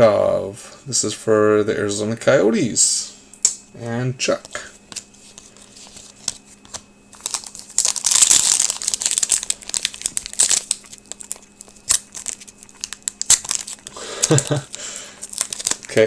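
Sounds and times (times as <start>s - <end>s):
foil wrapper crinkling and tearing: 4.9s - 16.0s.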